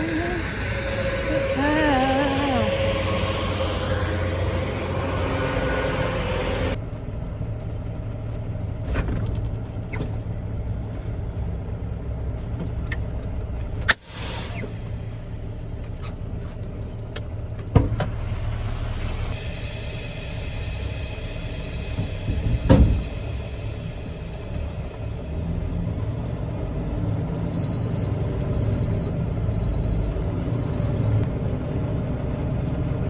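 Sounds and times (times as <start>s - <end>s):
truck diesel engine idling: 0.0s - 6.8s, 14.7s - 27.0s.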